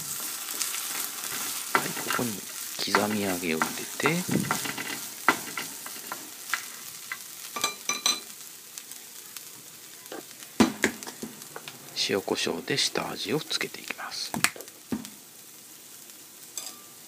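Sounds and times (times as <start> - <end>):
food sizzling in hot oil: 0.0 - 17.0
spatula scraping pan: 0.1 - 7.2.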